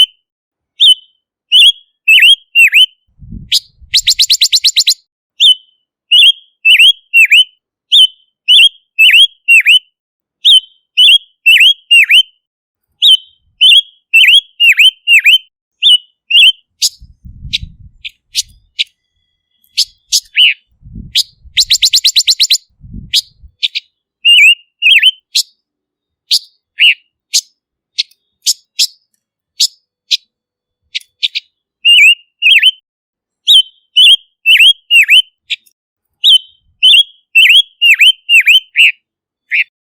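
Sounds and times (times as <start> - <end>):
bird whistled calls: 0.8 - 12.4, 13.0 - 25.6, 26.3 - 30.3, 30.9 - 32.8, 33.5 - 39.7
bird clicking trills: 3.6 - 9.8, 13.0 - 20.6, 21.2 - 22.6, 26.3 - 30.3, 30.9 - 32.8.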